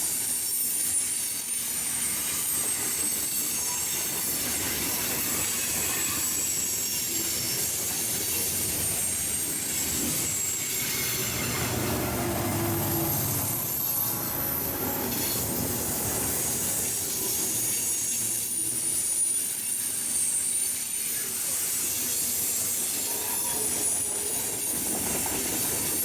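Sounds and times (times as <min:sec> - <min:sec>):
steel wheels squealing on rails: 0:00.0 - 0:26.0
train cars rumbling past: 0:07.6 - 0:18.9.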